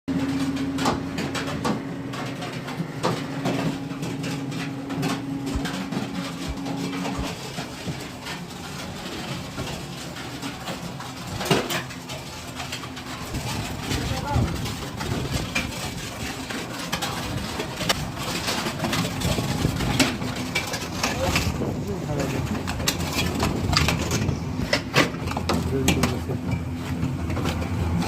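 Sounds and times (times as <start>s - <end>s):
machine motor hum: 0.2s - 9.7s
machine knocks and clanks: 0.2s - 27.7s.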